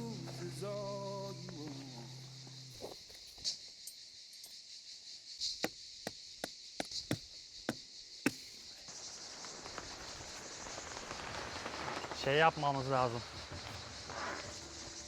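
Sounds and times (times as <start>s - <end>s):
tent stake being hammered: 5.6s - 8.6s.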